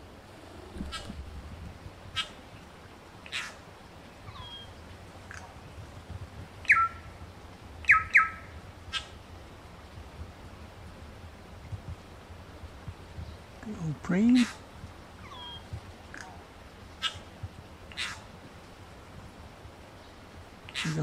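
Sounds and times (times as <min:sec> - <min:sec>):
bird giving harsh calls: 0:00.6 - 0:01.2, 0:06.7 - 0:07.0, 0:07.9 - 0:09.1, 0:17.9 - 0:18.3, 0:20.7 - 0:21.0
bird chirps: 0:04.3 - 0:04.8, 0:06.7 - 0:07.0, 0:07.8 - 0:08.5, 0:15.2 - 0:15.7.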